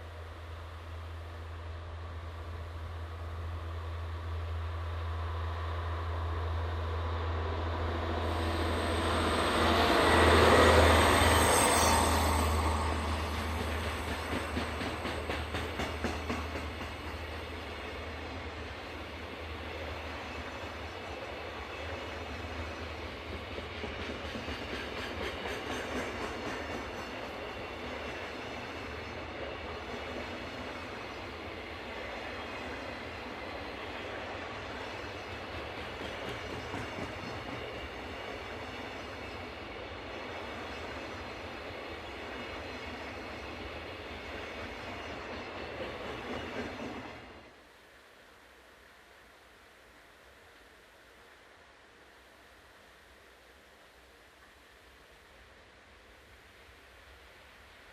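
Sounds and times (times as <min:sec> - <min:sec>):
diesel locomotive drone: 0:00.0 - 0:47.7
train wheels clicking on rail joints: 0:08.4 - 0:18.2, 0:22.8 - 0:31.2, 0:34.9 - 0:39.4, 0:42.0 - 0:47.4.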